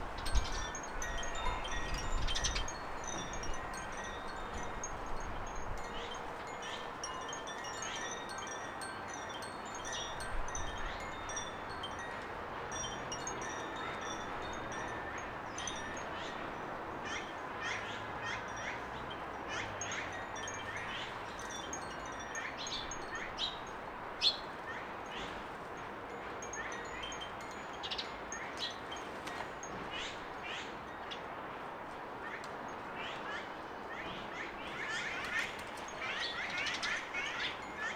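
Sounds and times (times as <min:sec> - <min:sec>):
birds chirping and calling: 0:33.0 - 0:37.9.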